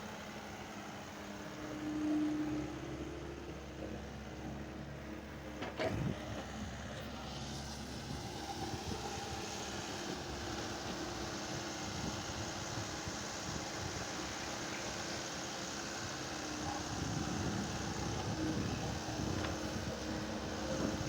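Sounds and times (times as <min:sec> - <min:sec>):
vehicle engine running: 0:02.9 - 0:21.0.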